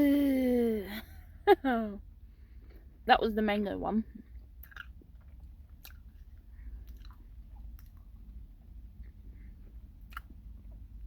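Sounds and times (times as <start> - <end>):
faint chewing of candy: 4.1 - 11.0
wet mouth clicks: 4.6 - 6.2.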